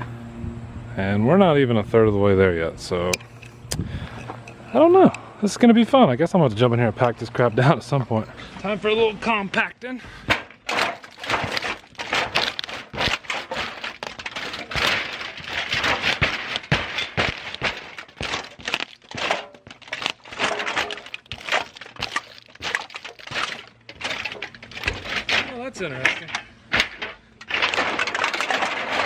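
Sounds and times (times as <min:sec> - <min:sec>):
aluminum cans being crushed: 0:10.2 - 0:29.0.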